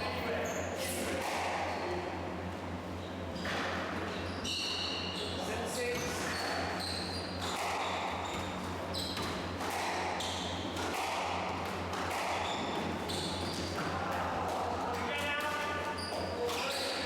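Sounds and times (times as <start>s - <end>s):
shoes squeaking on court floor: 3.0s - 11.1s, 11.7s - 14.0s, 15.2s - 17.0s
squash ball hitting walls: 7.4s - 15.3s.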